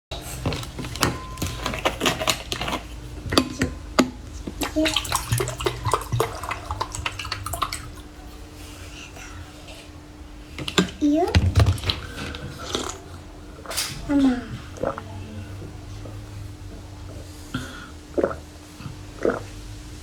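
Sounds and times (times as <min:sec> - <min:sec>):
person slurping and gulping juice: 0:01.6 - 0:09.5, 0:11.7 - 0:15.2, 0:17.1 - 0:19.8.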